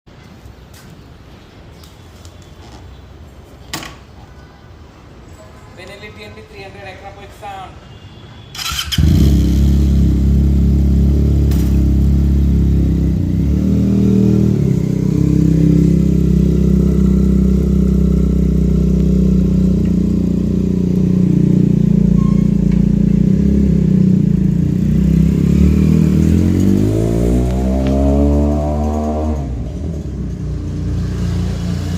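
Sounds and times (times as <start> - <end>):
motorcycle engine running: 8.7 - 31.9.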